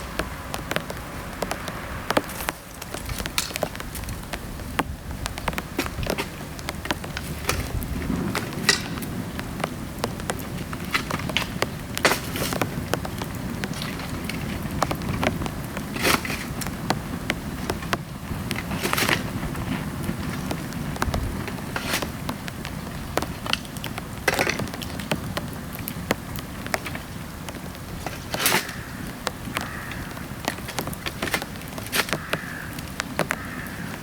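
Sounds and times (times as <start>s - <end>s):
flames roaring low: 0.0s - 25.8s
bamboo crackling and popping: 0.0s - 34.0s
falling rain: 0.0s - 34.0s.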